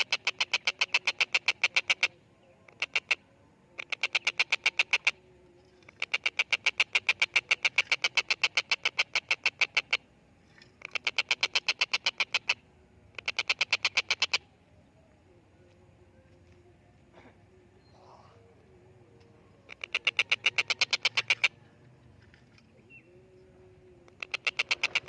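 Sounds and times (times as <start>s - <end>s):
kingfisher rapid chattering call: 6.0s - 10.0s, 10.8s - 14.4s, 19.7s - 21.6s, 24.2s - 25.0s.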